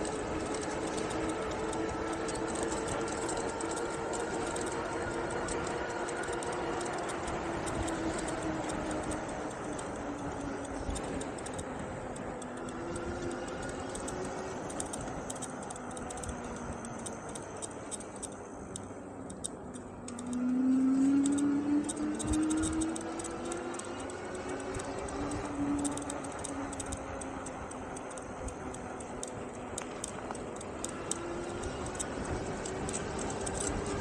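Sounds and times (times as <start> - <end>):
light ticking: 0.0 - 34.0
electric motor whining: 20.0 - 34.0.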